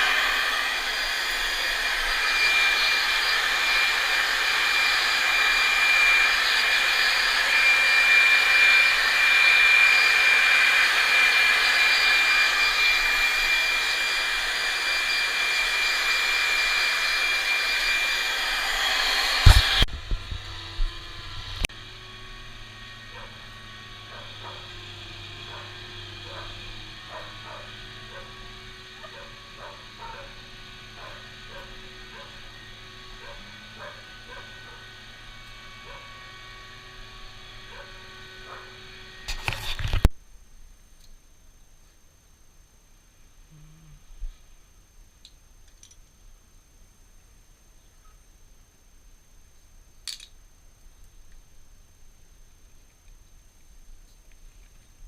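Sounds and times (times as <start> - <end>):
hair dryer blowing: 0.0 - 40.1
faint low hum: 40.2 - 55.0.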